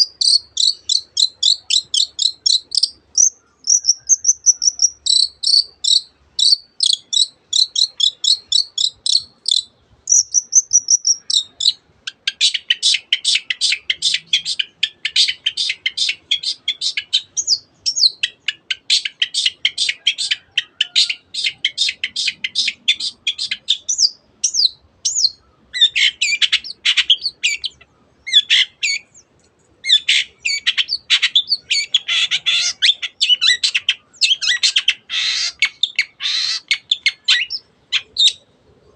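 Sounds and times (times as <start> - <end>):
shrike singing fast song: 0.0 - 29.2.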